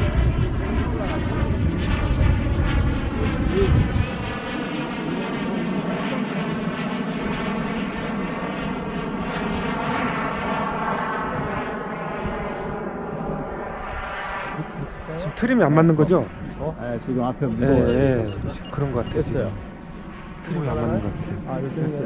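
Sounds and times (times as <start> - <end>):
heavy deep rumble: 0.0 - 8.2
model jet engine whine: 0.0 - 22.0.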